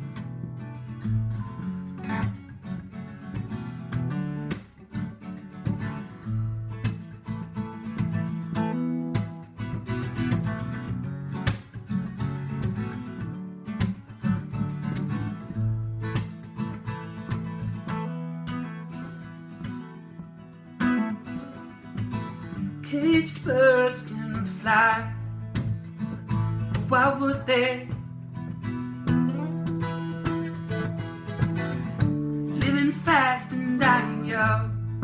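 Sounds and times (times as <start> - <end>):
acoustic guitar strumming chords: 0.0 - 35.0.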